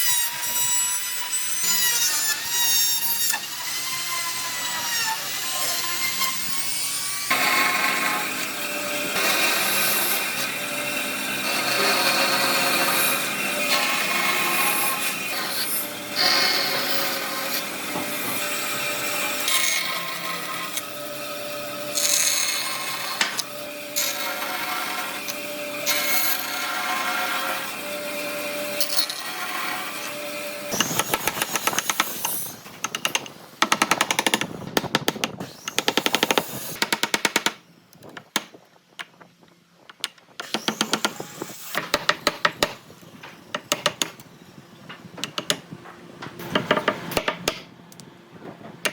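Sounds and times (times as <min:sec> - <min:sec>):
power tool grinding wood: 0:07.2 - 0:34.5.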